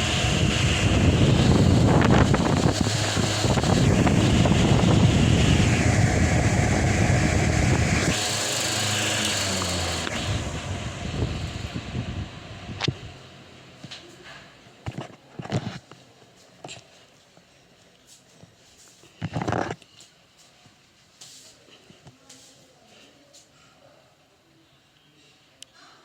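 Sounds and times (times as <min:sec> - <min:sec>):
airflow rumbling on microphone: 0:00.0 - 0:13.3
electric fan running: 0:00.0 - 0:14.1.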